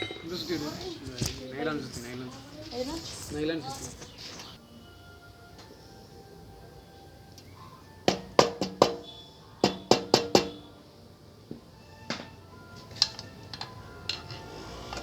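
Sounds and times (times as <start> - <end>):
sharp metallic knocks: 8.1 - 10.6.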